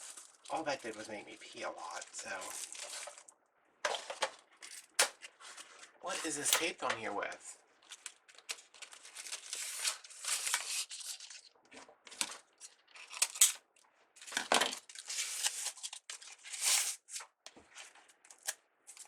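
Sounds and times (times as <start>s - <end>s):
ribbon crinkling and rustling: 0.0s - 3.4s, 4.0s - 6.8s, 7.8s - 13.6s.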